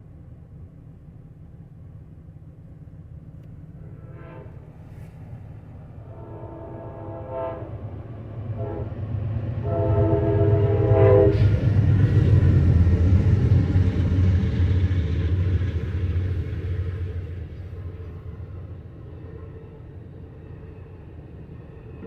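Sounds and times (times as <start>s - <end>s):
train rumbling past: 0.5s - 22.0s
train horn blasts: 3.8s - 5.2s, 6.0s - 9.0s, 9.6s - 11.5s.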